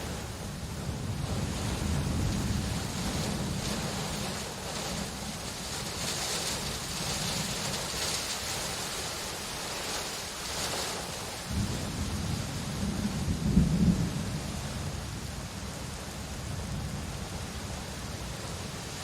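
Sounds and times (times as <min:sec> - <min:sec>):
distant thunder rumble: 0:00.0 - 0:08.2, 0:11.4 - 0:15.3
heavy rain: 0:00.0 - 0:19.0.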